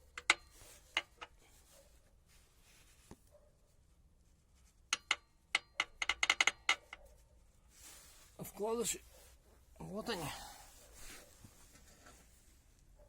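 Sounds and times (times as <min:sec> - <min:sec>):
clicks and taps of hands working: 0:00.0 - 0:01.4, 0:04.9 - 0:07.1.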